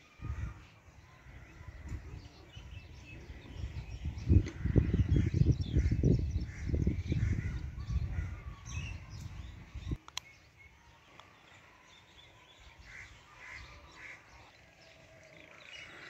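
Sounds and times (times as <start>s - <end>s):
birds calling: 0.0s - 16.0s
low microphone rumble: 1.3s - 10.0s.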